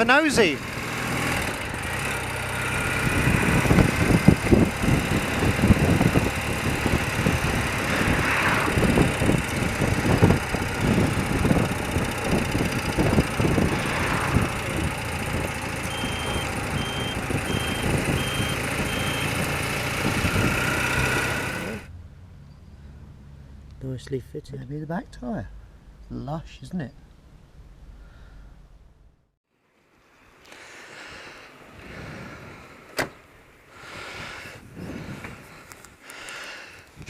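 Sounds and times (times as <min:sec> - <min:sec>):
motorcycle engine running: 0:00.3 - 0:21.9
wind buffeting microphone: 0:02.7 - 0:15.9, 0:16.5 - 0:21.1, 0:33.9 - 0:35.7
indicator bleeper beeping: 0:15.9 - 0:19.4.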